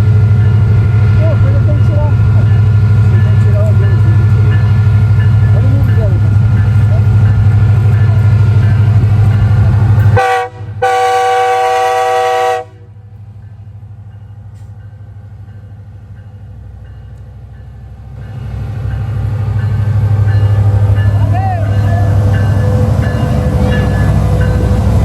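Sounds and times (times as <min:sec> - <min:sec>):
loud low train rumble: 0:00.0 - 0:25.0
train air horn blasts: 0:10.2 - 0:12.9.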